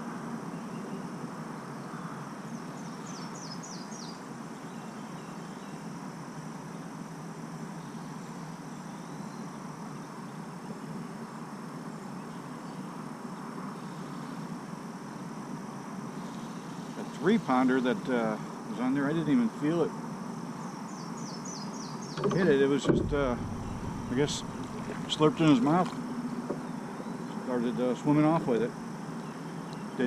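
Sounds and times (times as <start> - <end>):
high insect drone: 0.0 - 30.0
steady wash of noise: 22.9 - 25.4.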